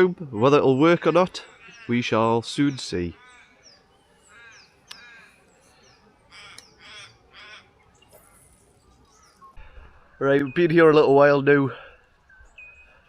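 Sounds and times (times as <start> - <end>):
small birds whistling: 0.9 - 13.0
crows cawing faintly: 1.0 - 10.2.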